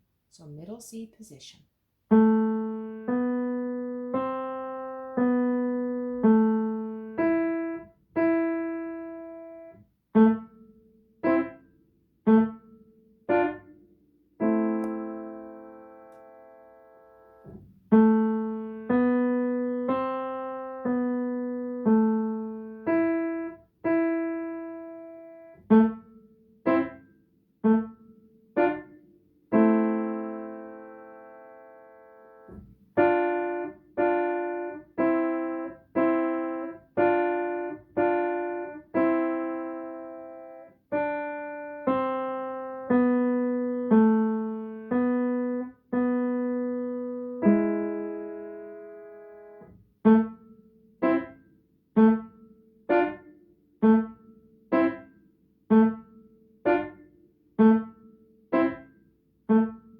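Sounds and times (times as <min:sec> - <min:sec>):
slow piano melody: 0:02.1 - 0:59.9.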